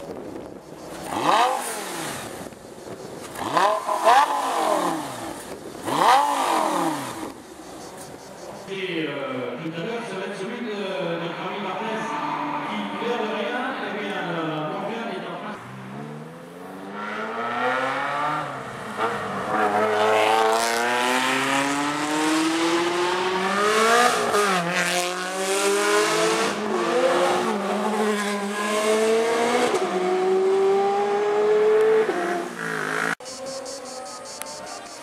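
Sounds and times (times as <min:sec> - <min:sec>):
supercar engine accelerating: 0:00.4 - 0:07.8, 0:15.6 - 0:35.0.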